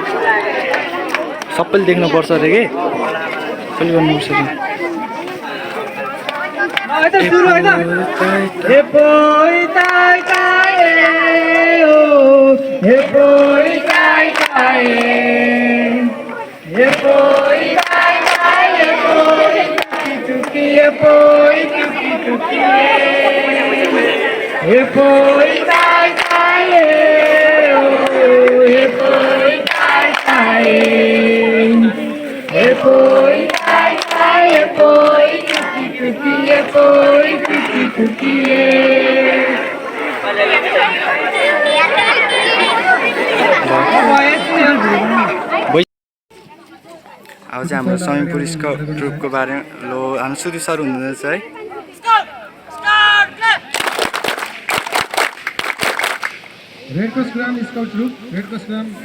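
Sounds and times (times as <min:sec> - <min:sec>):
voices singing long notes: 0:07.2 - 0:45.8, 0:47.6 - 0:50.1.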